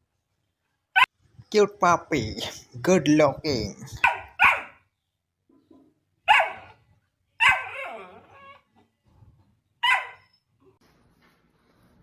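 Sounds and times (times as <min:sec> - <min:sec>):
dog barking: 0:04.0 - 0:04.8, 0:06.3 - 0:06.8, 0:07.4 - 0:08.0, 0:09.8 - 0:10.2.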